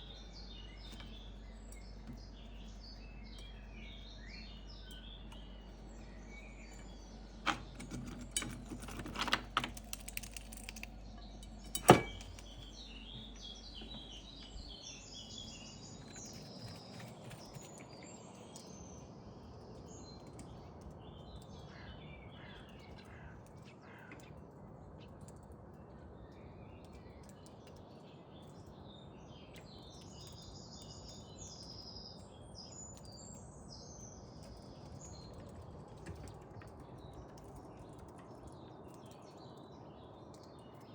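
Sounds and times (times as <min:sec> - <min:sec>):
small birds chirping: 0:00.0 - 0:40.9
clicks and knocks: 0:06.7 - 0:14.5.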